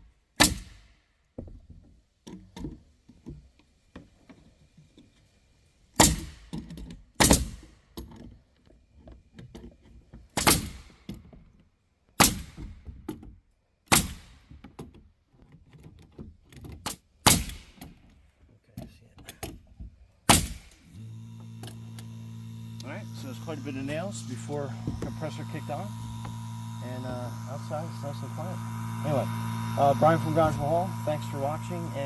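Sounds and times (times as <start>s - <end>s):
nail gun firing: 0.4s - 0.9s, 6.0s - 6.4s, 7.2s - 7.6s, 10.4s - 10.9s, 12.2s - 12.6s, 13.9s - 14.4s, 17.2s - 17.9s, 20.3s - 20.9s
air compressor motor humming: 20.8s - 32.0s.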